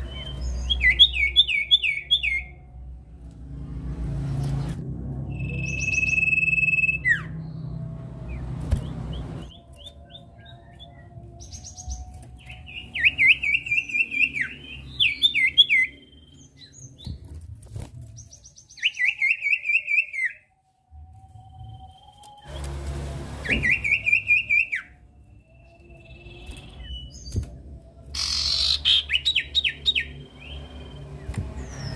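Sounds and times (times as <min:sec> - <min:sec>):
bird singing whistles and trills: 0:00.0 - 0:02.6, 0:05.3 - 0:07.6, 0:08.3 - 0:17.2, 0:18.2 - 0:20.5, 0:23.5 - 0:31.9.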